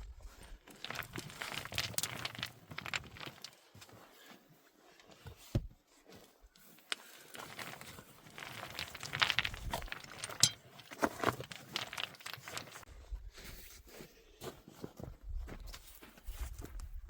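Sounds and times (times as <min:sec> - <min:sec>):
crunching and rustling handling: 0:00.5 - 0:12.9.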